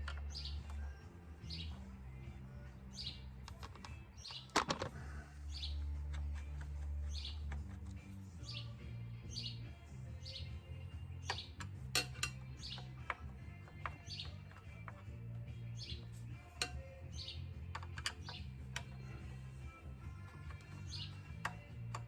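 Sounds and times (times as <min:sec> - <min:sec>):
small bird chirping: 0:00.0 - 0:22.0
sharp clicks and taps: 0:03.4 - 0:04.9.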